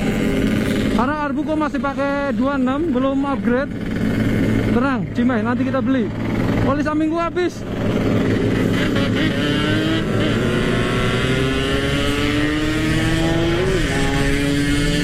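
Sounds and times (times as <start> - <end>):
motorcycle engine running hard: 0.0 - 15.0.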